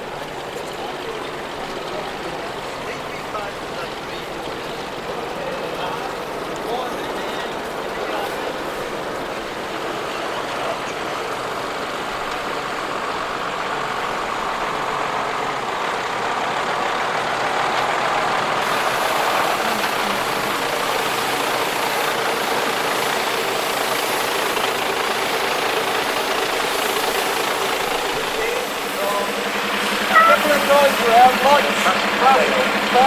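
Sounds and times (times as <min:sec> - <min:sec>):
truck engine running: 0:00.0 - 0:33.0.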